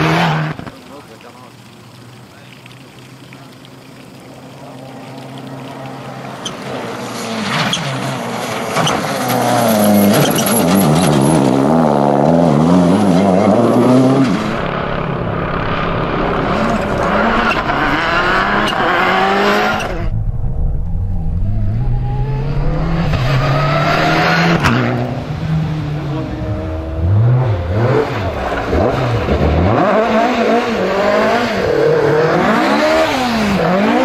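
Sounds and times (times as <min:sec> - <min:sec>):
rally car engine revving: 0:00.0 - 0:00.7, 0:06.4 - 0:34.0
rally car accelerating: 0:05.8 - 0:34.0.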